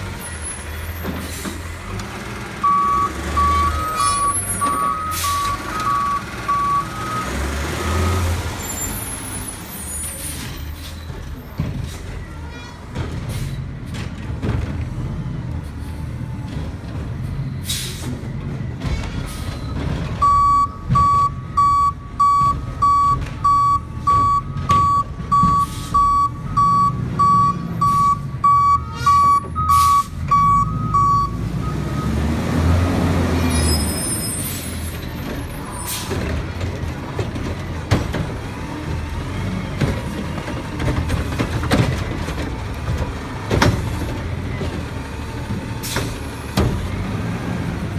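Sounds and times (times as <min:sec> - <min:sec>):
diesel truck engine running: 0:00.0 - 0:47.9
reversing alarm beeping: 0:02.6 - 0:08.4, 0:20.2 - 0:32.3.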